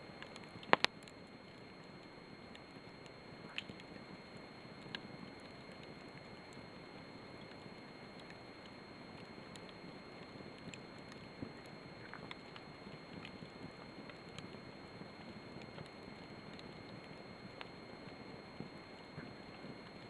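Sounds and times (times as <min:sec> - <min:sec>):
fire pops and crackles: 0:00.2 - 0:01.2.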